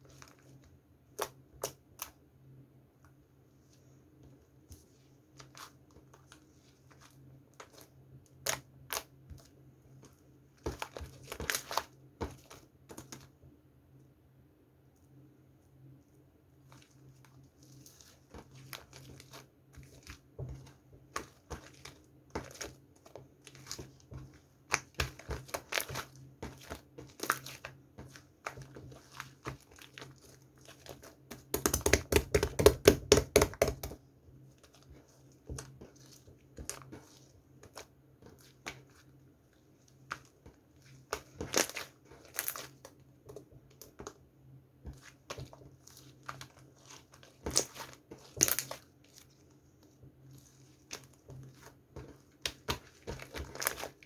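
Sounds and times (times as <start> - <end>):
slime clicking and crackling: 24.7 - 34.0
rapid slime pops: 31.2 - 34.0.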